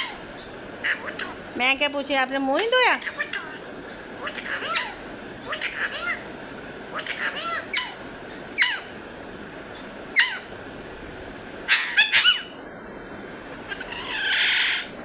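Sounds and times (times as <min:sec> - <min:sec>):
parrot squawks: 0:00.0 - 0:01.4, 0:03.0 - 0:06.3, 0:06.9 - 0:09.0, 0:10.1 - 0:10.5, 0:11.7 - 0:12.6, 0:13.7 - 0:15.0
parrot harsh screech: 0:04.3 - 0:06.2, 0:11.7 - 0:12.6, 0:13.7 - 0:15.0.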